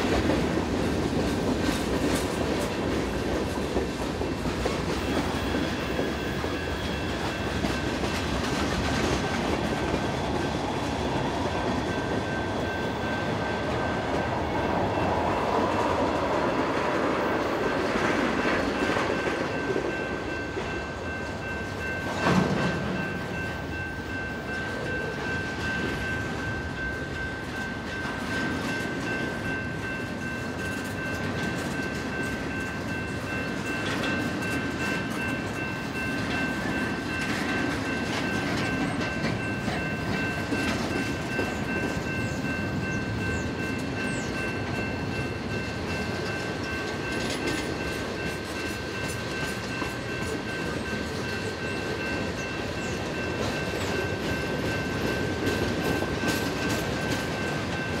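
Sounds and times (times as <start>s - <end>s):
train wheels rumbling and clicking: 0.0s - 58.0s
high ringing tone: 10.2s - 16.0s.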